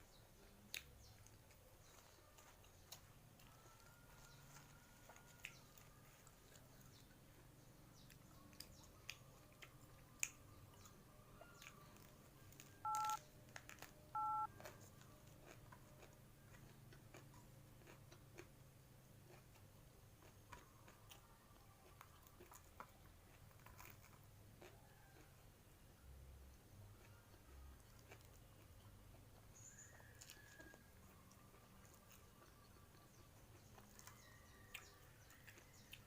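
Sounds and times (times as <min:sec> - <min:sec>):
quiet chewing: 0:00.1 - 0:36.0
telephone keypad beeps: 0:12.8 - 0:13.2, 0:14.2 - 0:14.5.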